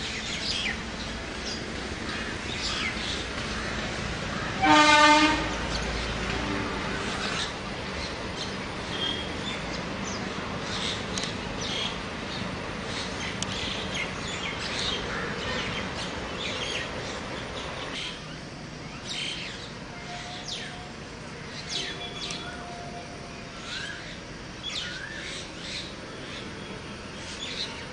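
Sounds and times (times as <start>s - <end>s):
birds chirping and calling: 0.0s - 4.6s
steady rushing background noise: 0.0s - 27.9s.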